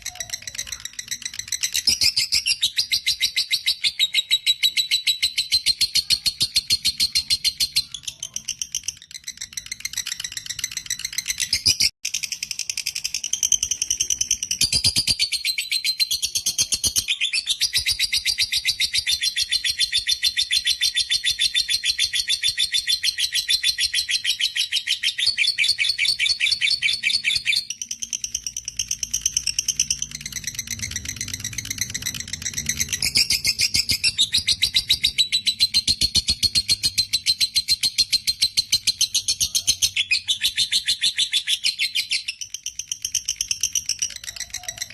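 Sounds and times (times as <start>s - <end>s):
lovebird shrill chirping chatter: 0.0s - 44.9s.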